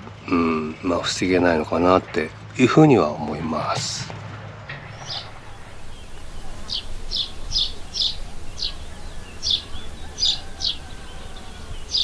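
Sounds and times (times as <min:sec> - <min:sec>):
steady low rumble: 0:04.7 - 0:10.9
small bird chirping: 0:04.7 - 0:12.0.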